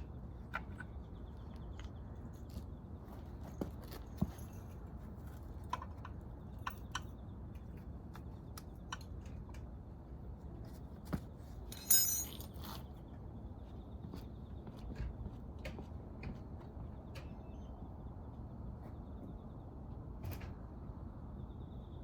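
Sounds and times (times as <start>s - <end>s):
metal engine parts clicking: 11.7s - 12.4s
metallic jangle: 11.7s - 12.5s.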